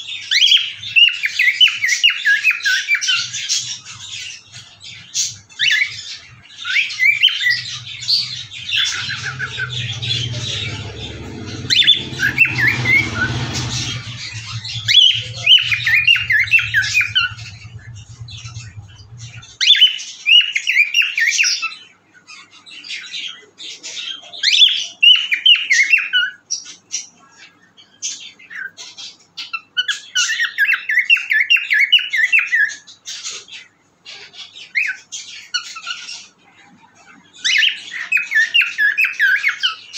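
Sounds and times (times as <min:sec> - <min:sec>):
cockatiel chirping and squawking: 0:00.2 - 0:11.0.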